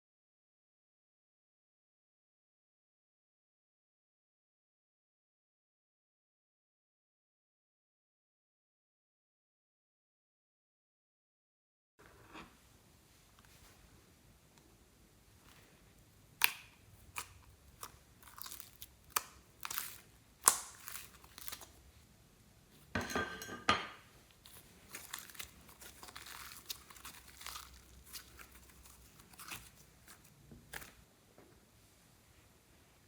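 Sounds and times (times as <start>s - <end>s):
slime popping and crackling: 16.4s - 21.8s, 24.5s - 31.0s.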